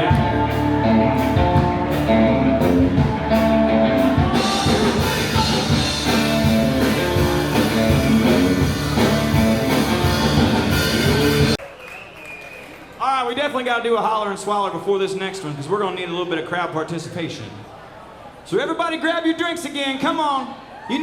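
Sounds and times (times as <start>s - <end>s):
drum kit: 0.0s - 11.6s
electric guitar: 0.0s - 11.6s
live rock band playing: 0.0s - 11.6s.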